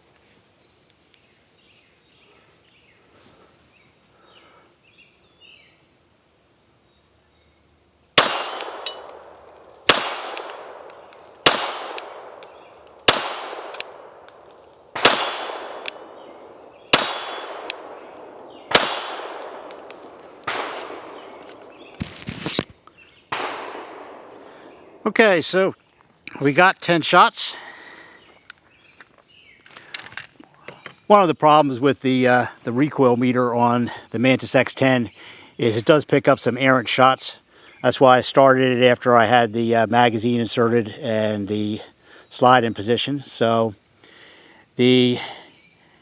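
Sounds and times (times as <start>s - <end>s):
pistol shots echoing: 8.2s - 22.0s, 23.3s - 25.0s.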